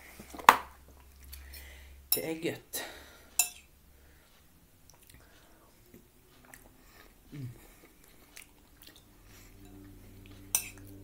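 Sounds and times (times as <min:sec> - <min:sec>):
person chewing food: 0:00.2 - 0:01.6, 0:03.6 - 0:11.0
short low falling hum: 0:09.0 - 0:11.0.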